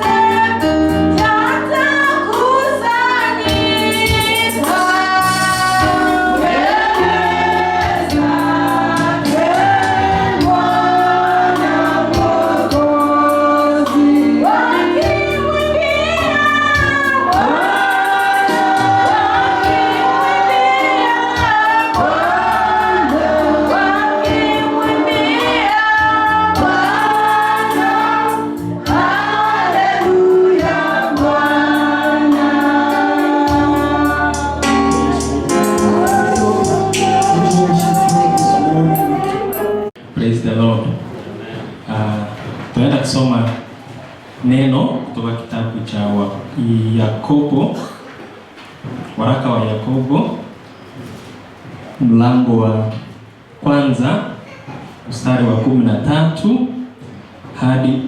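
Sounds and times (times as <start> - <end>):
choir singing gospel song: 0.0 - 40.0
instrumental backing with beat: 0.0 - 40.0.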